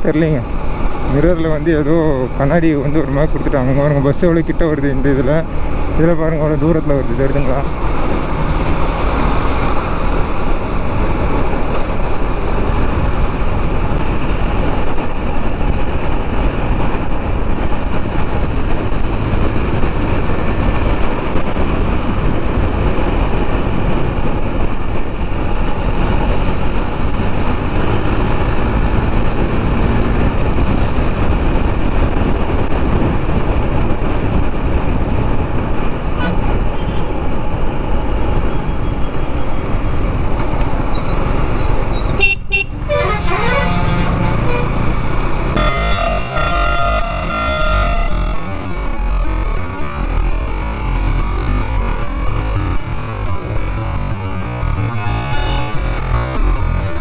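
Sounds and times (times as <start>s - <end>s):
passing traffic: 0.0s - 57.0s
wind on microphone: 7.7s - 45.7s
motorcycle engine running: 41.2s - 57.0s.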